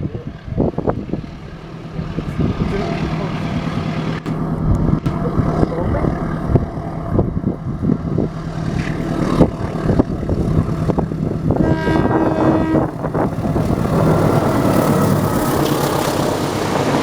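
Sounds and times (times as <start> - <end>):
diesel locomotive engine rumble: 0.0 - 17.0
locomotive horn blast: 11.5 - 13.7.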